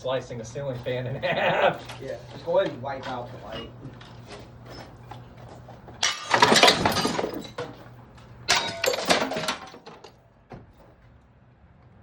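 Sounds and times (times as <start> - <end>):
glass shattering: 6.0 - 7.8, 8.5 - 10.2.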